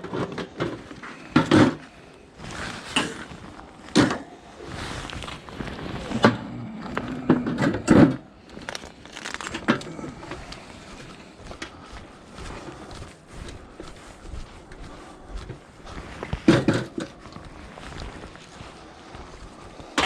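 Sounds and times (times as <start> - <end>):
scrap being handled: 0.0 - 8.1.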